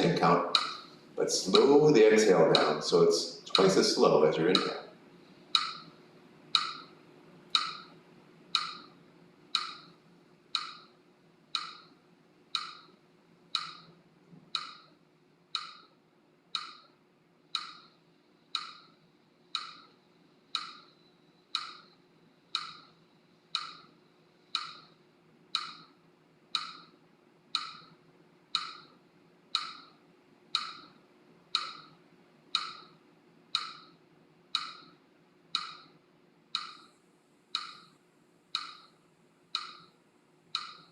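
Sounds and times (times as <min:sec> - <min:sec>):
faint hum: 0:00.0 - 0:40.9
woodblock-like ticking: 0:00.1 - 0:01.7, 0:02.4 - 0:03.8, 0:04.5 - 0:04.8, 0:05.5 - 0:05.9, 0:06.5 - 0:06.9, 0:07.5 - 0:08.9, 0:09.5 - 0:10.9, 0:11.5 - 0:11.9, 0:12.5 - 0:13.9, 0:14.5 - 0:15.9, 0:16.6 - 0:16.9, 0:17.5 - 0:18.9, 0:19.5 - 0:19.9, 0:20.5 - 0:21.0, 0:21.6 - 0:22.9, 0:23.6 - 0:23.9, 0:24.5 - 0:25.9, 0:26.6 - 0:26.9, 0:27.6 - 0:29.9, 0:30.5 - 0:31.0, 0:31.6 - 0:32.0, 0:32.6 - 0:33.0, 0:33.6 - 0:34.0, 0:34.6 - 0:35.0, 0:35.6 - 0:36.0, 0:36.6 - 0:36.9, 0:37.6 - 0:37.9, 0:38.6 - 0:38.9, 0:39.6 - 0:39.9, 0:40.6 - 0:40.9.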